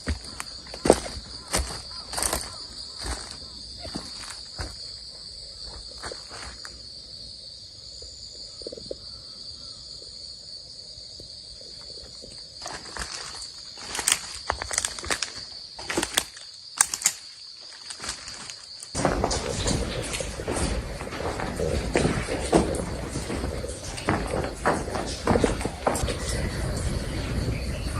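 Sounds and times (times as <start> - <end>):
insects droning: 0.0 - 27.9
sharp knocks and scrapes: 12.6 - 27.9.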